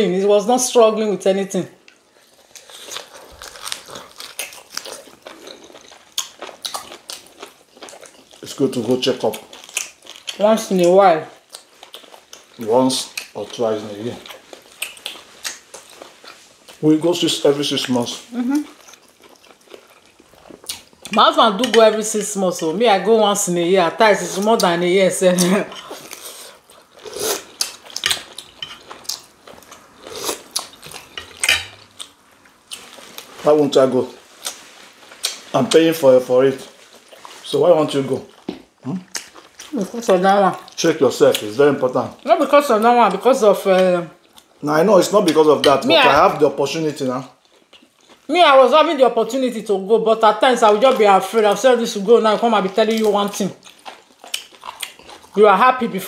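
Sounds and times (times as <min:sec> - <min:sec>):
people chewing chicken: 0:02.0 - 0:16.9, 0:17.5 - 0:21.2, 0:25.4 - 0:33.3, 0:36.6 - 0:45.4, 0:47.3 - 0:48.3, 0:52.9 - 0:55.4.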